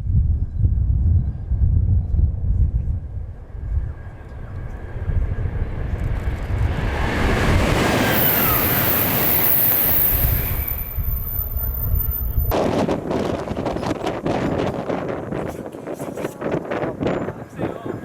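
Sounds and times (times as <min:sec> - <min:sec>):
wind buffeting microphone: 0:00.0 - 0:18.0
high-speed train passing: 0:01.4 - 0:15.3.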